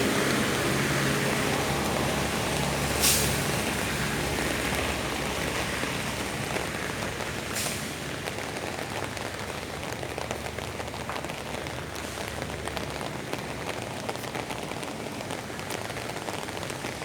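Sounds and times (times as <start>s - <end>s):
heavy vehicle engine running: 0.0s - 8.4s
steady rain: 0.0s - 17.0s
air-brake hiss: 3.0s - 3.4s, 7.5s - 7.9s.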